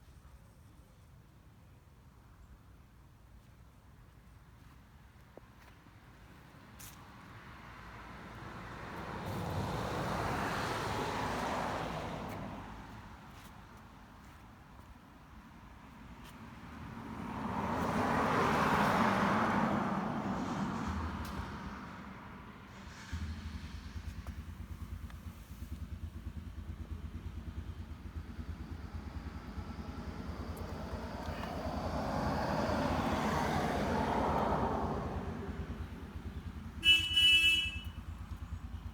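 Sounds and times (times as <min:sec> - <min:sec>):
road vehicle passing by: 0:06.2 - 0:38.9
motorcycle engine idling: 0:20.8 - 0:38.9.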